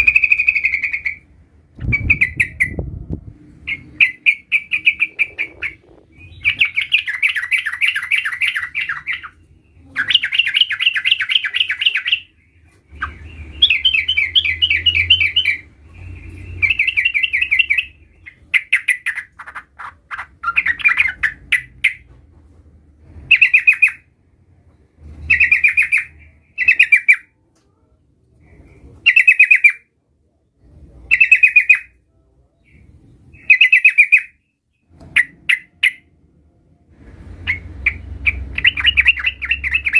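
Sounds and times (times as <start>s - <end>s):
bulbul chattering trills: 3.6s - 12.3s, 37.4s - 39.9s.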